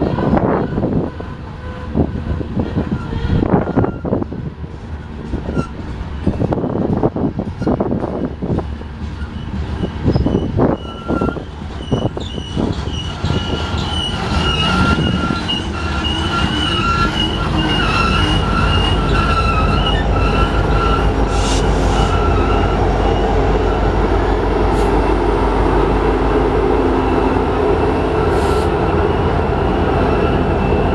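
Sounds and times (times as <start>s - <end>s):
train cars rumbling: 0.0s - 30.9s
wheel flanges squealing: 9.2s - 24.0s.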